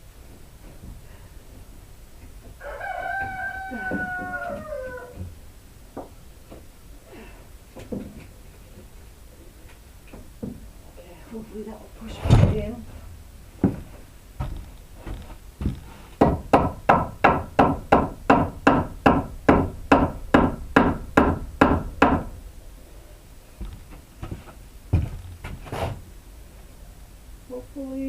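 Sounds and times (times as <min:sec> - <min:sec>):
hammer strikes: 0:16.2 - 0:22.4.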